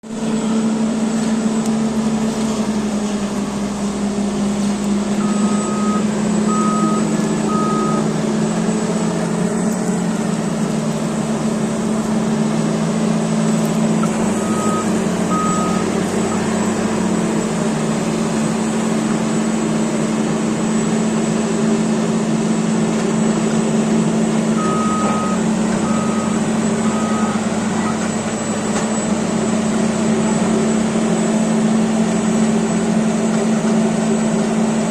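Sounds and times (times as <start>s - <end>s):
bulldozer diesel engine running: 0.0s - 34.9s
reverse alarm beeping: 5.2s - 8.2s, 14.2s - 16.5s, 24.6s - 28.7s.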